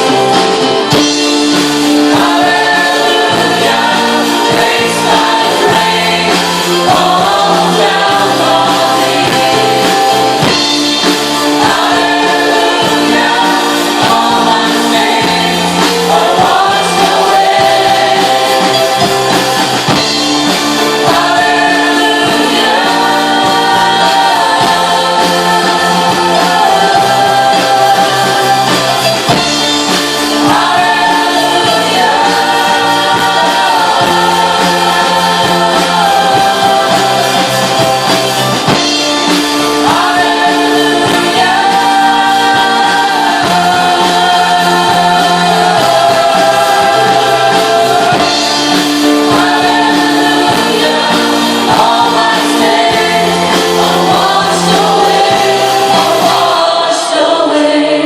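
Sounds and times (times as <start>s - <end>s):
group singing held notes: 0.0s - 58.0s
worship band playing: 0.0s - 58.0s.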